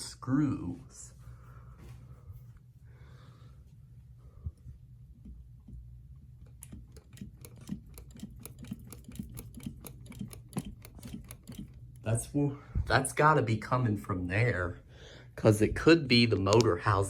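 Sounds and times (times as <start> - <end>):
ceiling fan humming: 0.0 - 17.0
regular ticking: 5.2 - 12.3.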